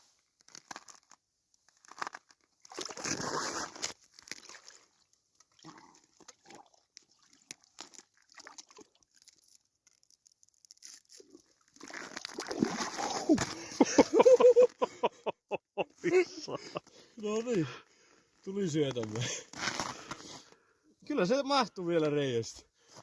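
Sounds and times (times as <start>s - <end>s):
ice crunching: 0.4s - 6.2s, 7.2s - 14.9s, 18.6s - 20.5s
small knocks and splashes: 2.6s - 9.4s, 11.2s - 13.7s
water sloshing: 11.8s - 14.1s.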